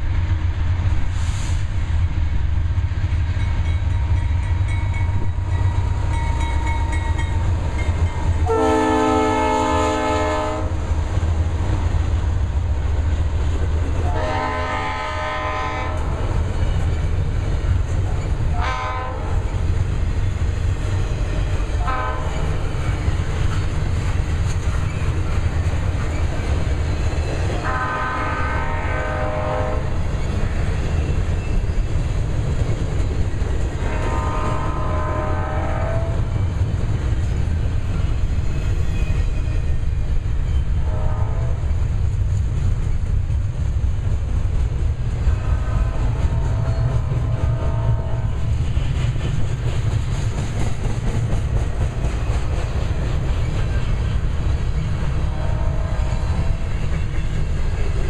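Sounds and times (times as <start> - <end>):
train rumbling past: 0.0 - 58.0
locomotive horn blasts: 8.4 - 10.8, 14.0 - 16.2, 18.5 - 19.4, 21.8 - 22.5, 27.6 - 30.0, 33.8 - 36.3, 40.8 - 41.8, 45.4 - 48.4, 55.2 - 56.7.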